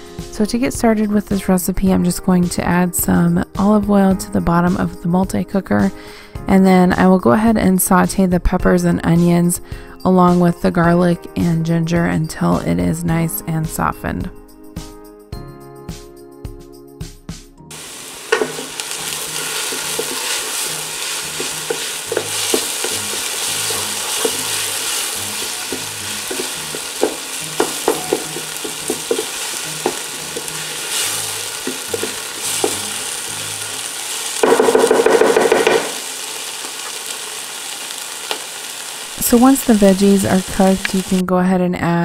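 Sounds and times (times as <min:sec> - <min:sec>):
vegetables sizzling in hot oil: 0:17.7 - 0:41.2
wooden spatula scraping pan: 0:17.8 - 0:33.3.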